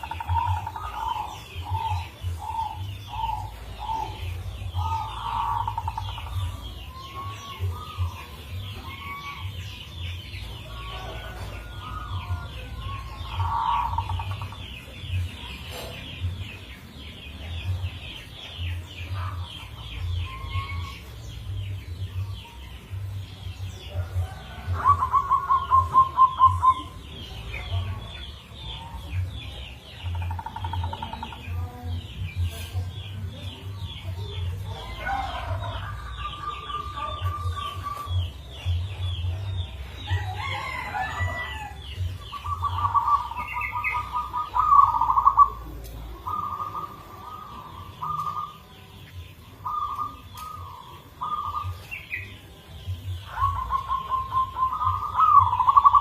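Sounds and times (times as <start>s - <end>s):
dove cooing: 0.0s - 9.6s, 10.6s - 16.5s, 23.9s - 27.9s, 40.1s - 48.6s, 49.6s - 52.2s, 53.2s - 56.0s.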